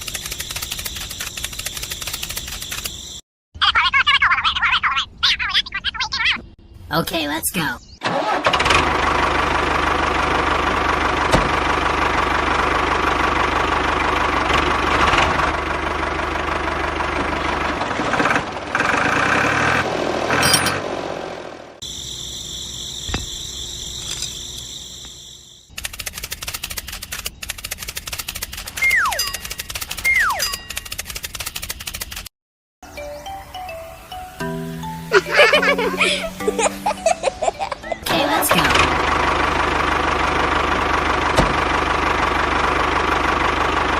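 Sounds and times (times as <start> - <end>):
rapid ticking: 0.0 - 2.9
tractor-like engine running: 0.0 - 3.2, 8.0 - 32.3, 33.5 - 43.9.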